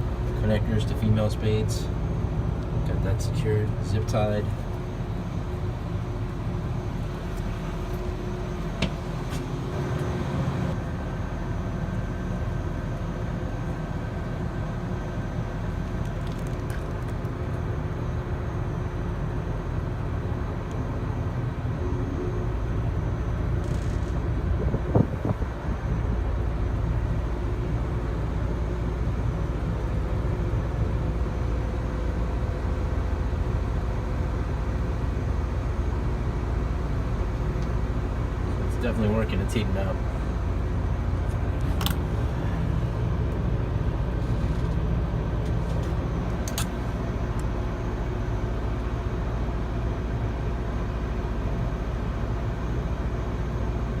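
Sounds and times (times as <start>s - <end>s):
low mechanical rumble: 0.0s - 54.0s
sharp click: 45.8s - 46.8s.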